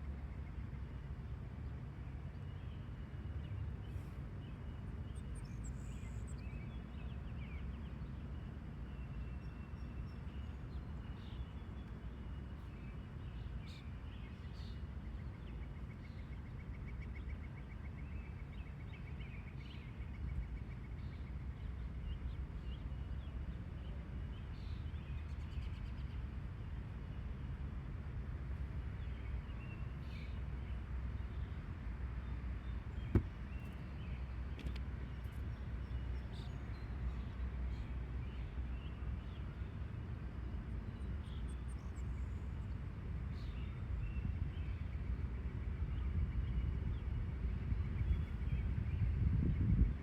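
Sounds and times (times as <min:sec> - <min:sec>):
songbirds chirping: 0:00.0 - 0:50.0.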